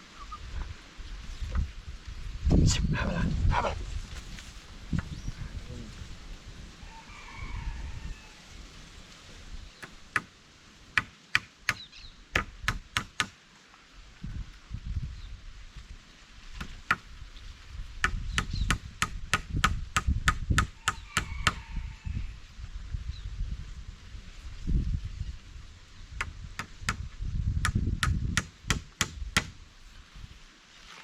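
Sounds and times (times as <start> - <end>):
sharp chopping blows: 11.0 - 13.4, 26.2 - 29.6.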